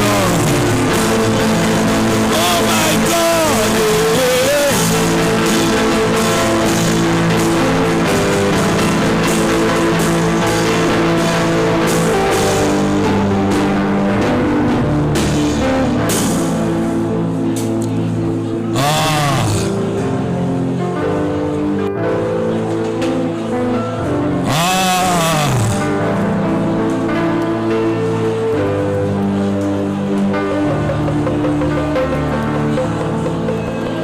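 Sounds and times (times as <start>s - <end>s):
instrumental worship music: 0.0s - 21.1s.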